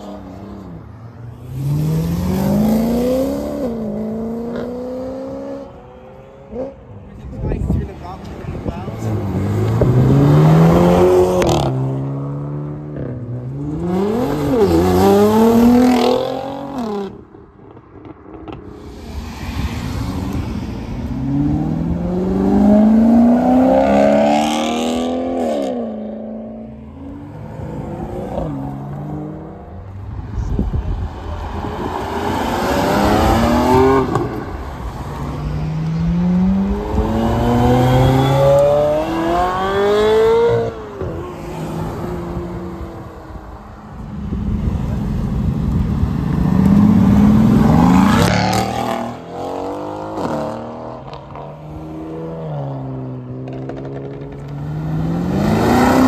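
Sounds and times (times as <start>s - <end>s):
cars accelerating with gearshifts: 31.1s - 43.0s, 45.7s - 56.0s.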